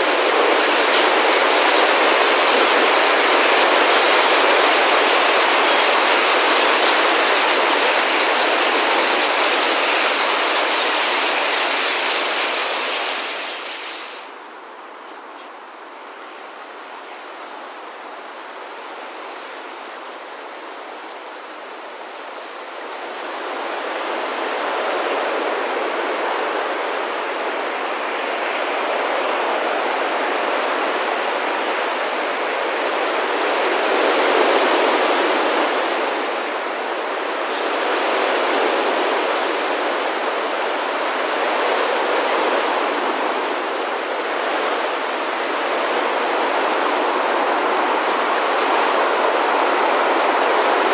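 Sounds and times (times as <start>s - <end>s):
flock of birds wingbeats whooshing: 0.0s - 14.4s.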